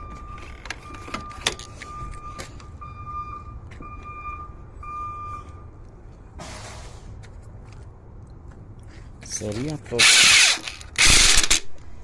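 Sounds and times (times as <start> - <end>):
car warning chime beeping: 0.0 - 5.7.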